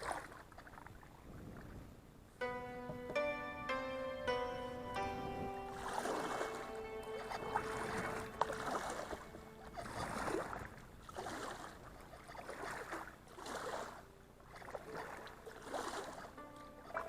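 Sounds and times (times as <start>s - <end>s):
paddle strokes splashing in water: 0.0s - 1.7s, 5.7s - 17.0s.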